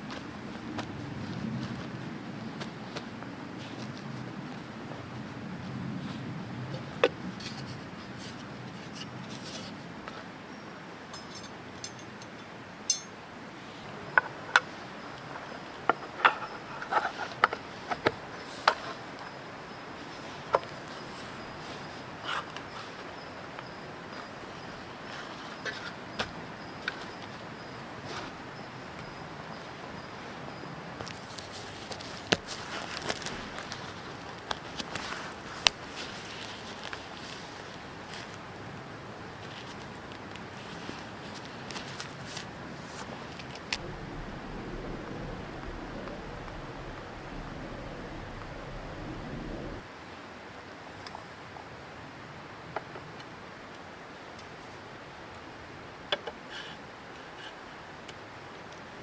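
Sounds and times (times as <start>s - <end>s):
steady hiss: 43.7s - 49.8s
wood fire crackling and popping: 43.7s - 49.8s.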